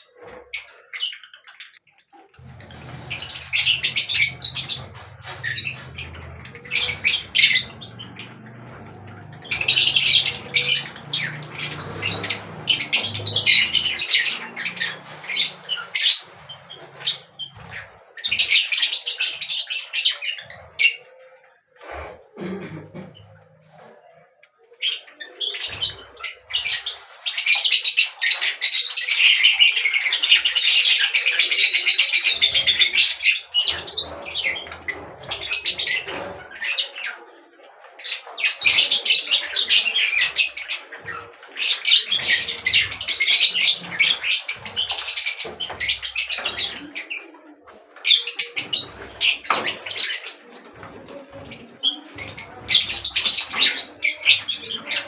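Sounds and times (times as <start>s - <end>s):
small birds chirping: 0.0s - 21.7s, 24.8s - 55.0s.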